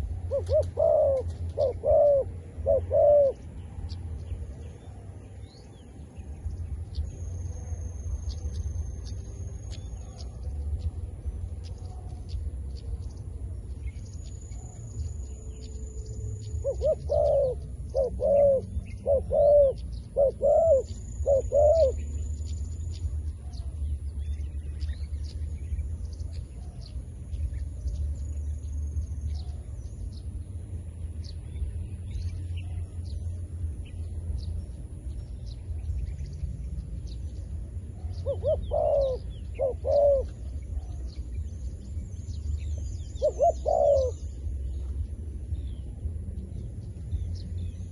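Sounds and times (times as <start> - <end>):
dove cooing: 0.0 - 3.5, 16.5 - 22.1, 38.0 - 41.2, 43.2 - 44.4.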